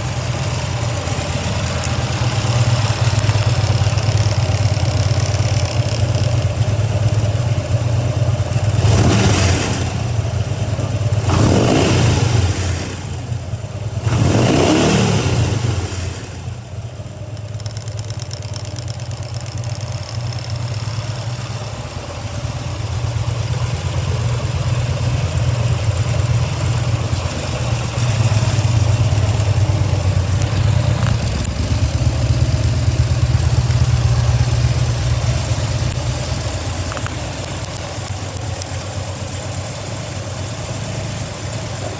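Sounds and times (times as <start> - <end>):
motorcycle engine idling and revving: 0.0 - 41.9.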